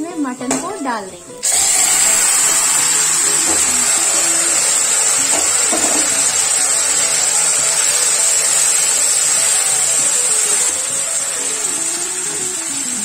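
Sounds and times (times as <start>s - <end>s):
stock sizzling in hot oil: 1.4s - 13.0s.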